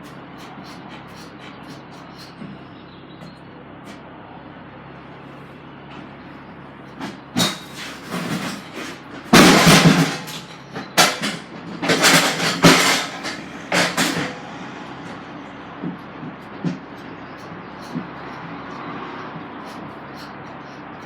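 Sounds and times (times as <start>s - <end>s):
truck engine idling: 0.0s - 21.0s
loud bangs and clatter: 7.0s - 17.0s.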